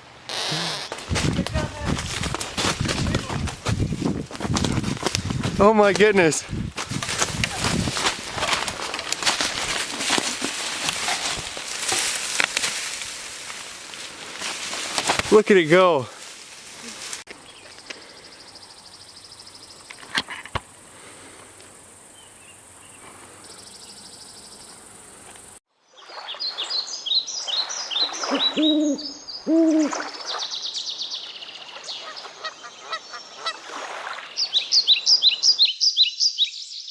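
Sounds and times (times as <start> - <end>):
birds chirping: 0.2 - 6.5, 22.0 - 36.9
low hooting bird notes: 28.3 - 30.0.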